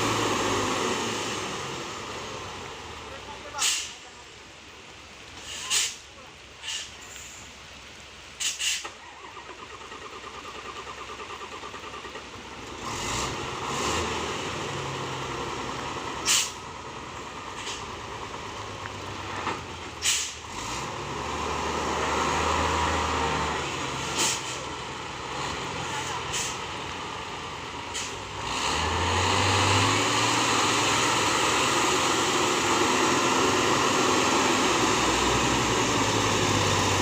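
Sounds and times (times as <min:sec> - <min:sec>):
short sharp air hisses: 0:03.6 - 0:04.0, 0:05.4 - 0:06.0, 0:06.6 - 0:07.4, 0:08.4 - 0:09.0, 0:16.2 - 0:16.6, 0:20.0 - 0:20.4
truck engine cranking and running: 0:08.8 - 0:37.0.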